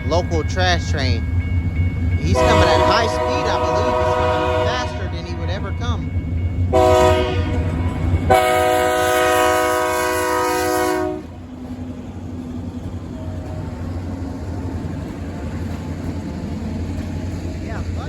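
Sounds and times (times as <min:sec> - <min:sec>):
train rumbling: 0:00.0 - 0:18.0
locomotive air horn blasts: 0:02.4 - 0:05.5, 0:06.7 - 0:07.7, 0:08.3 - 0:11.4.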